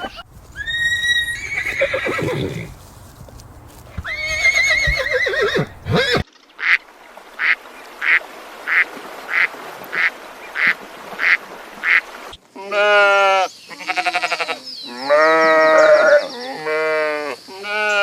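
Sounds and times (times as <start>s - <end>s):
horse whinnying: 0.0s - 6.2s.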